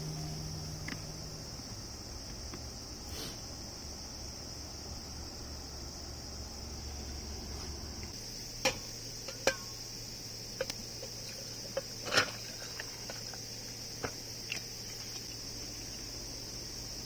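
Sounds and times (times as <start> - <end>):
high-pitched insect chirring: 0.0 - 4.8.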